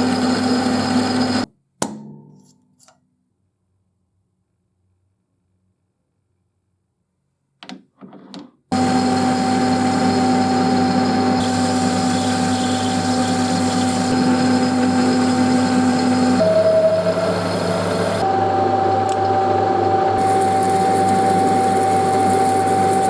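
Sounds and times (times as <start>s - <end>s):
power machine humming and whining: 0.0s - 1.5s, 8.8s - 23.0s.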